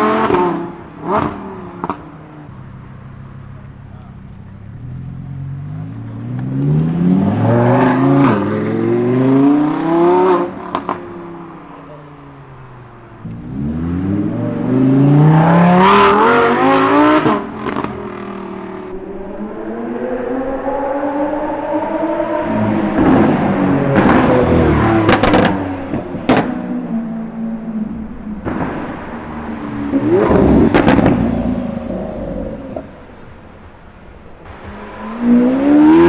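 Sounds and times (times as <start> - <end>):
car engine accelerating hard: 0.0 - 36.0
exhaust pops: 23.0 - 26.7, 30.0 - 33.0.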